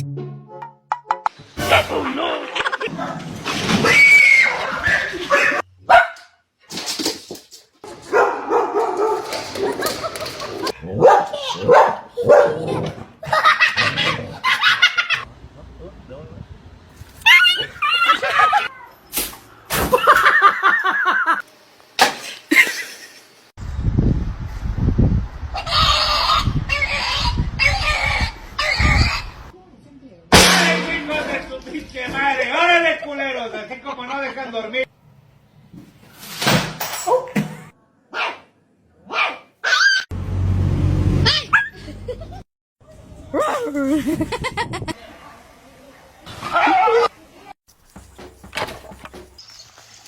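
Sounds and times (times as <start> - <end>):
dog barking: 5.4 - 6.4, 8.1 - 9.3, 10.9 - 12.7, 38.1 - 38.5, 39.1 - 39.9.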